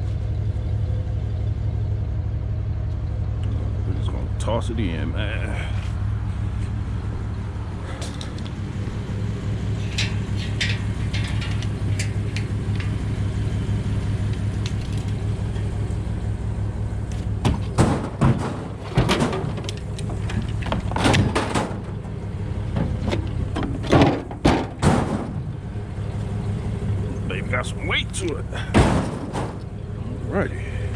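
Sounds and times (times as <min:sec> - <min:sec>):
truck engine idling: 0:00.0 - 0:30.9
scrap metal clanking into truck bed: 0:09.6 - 0:13.0, 0:17.4 - 0:25.6, 0:28.6 - 0:29.8.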